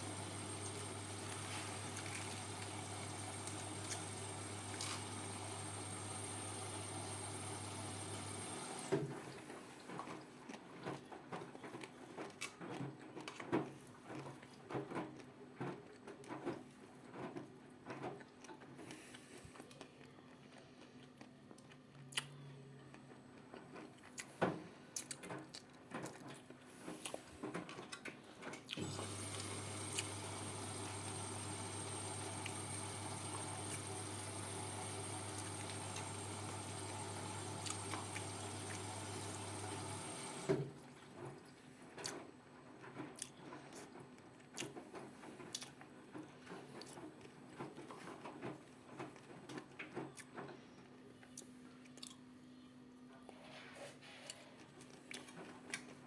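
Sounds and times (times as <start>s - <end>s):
washing machine valve hum: 0.0s - 8.9s, 28.8s - 40.8s.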